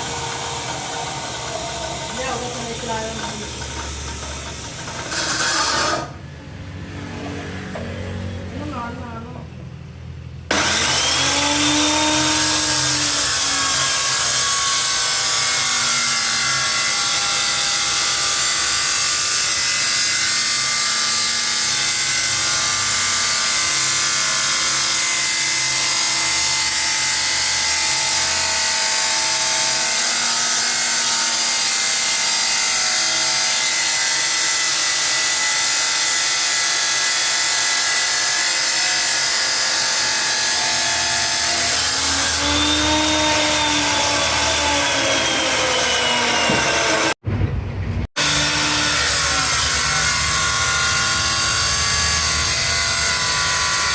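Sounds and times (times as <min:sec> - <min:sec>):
power tool whining on metal: 0:00.0 - 0:06.2, 0:10.5 - 0:47.2.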